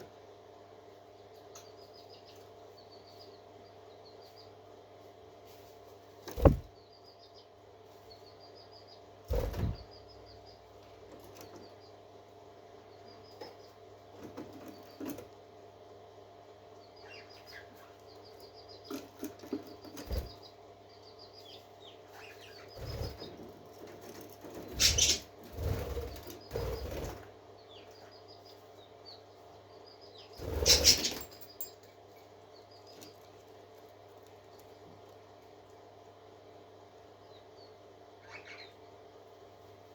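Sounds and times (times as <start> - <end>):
parakeets chattering: 24.6 - 27.1, 30.1 - 31.3, 38.2 - 38.8.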